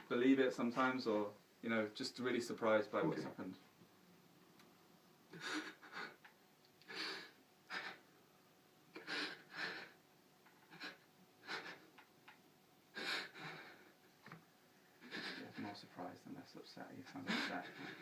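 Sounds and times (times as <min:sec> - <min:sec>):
person breathing heavily: 0:05.3 - 0:06.2, 0:06.8 - 0:08.1, 0:09.0 - 0:10.0, 0:10.6 - 0:11.9, 0:12.9 - 0:14.0, 0:15.0 - 0:15.7, 0:17.2 - 0:18.0.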